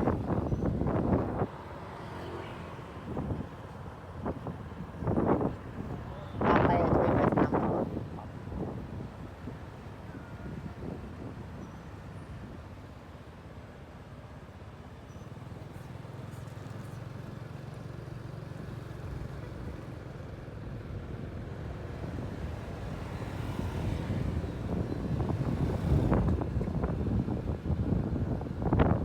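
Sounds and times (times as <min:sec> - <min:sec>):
wind rush on microphone: 0:00.0 - 0:01.7, 0:02.7 - 0:12.7, 0:21.1 - 0:29.0.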